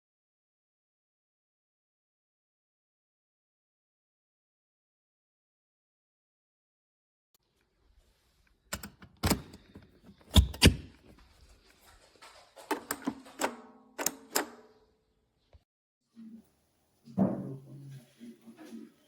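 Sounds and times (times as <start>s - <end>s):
sharp clicks and knocks: 12.1s - 14.7s.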